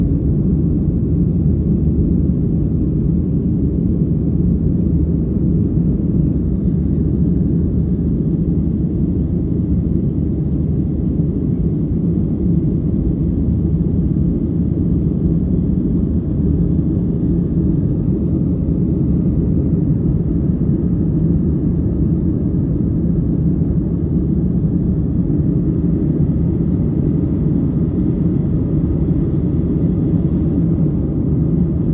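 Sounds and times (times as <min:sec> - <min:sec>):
airliner engines rumbling: 0:00.0 - 0:31.9.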